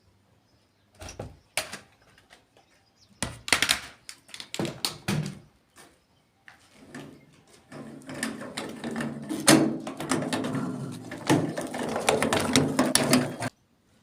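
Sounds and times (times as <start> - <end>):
objects knocking and thudding: 6.8 - 13.5.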